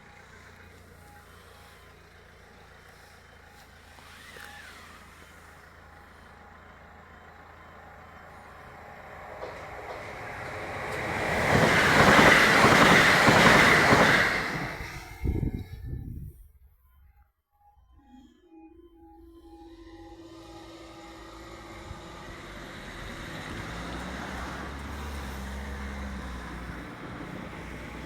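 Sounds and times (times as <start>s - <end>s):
train passing rumble: 0.0s - 16.3s, 19.6s - 28.0s
level crossing alarm pulsing: 18.1s - 28.0s.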